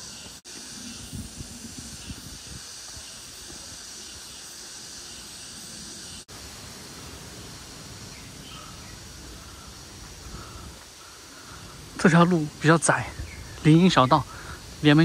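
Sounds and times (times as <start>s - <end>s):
outdoor ambience hiss: 0.0s - 15.0s.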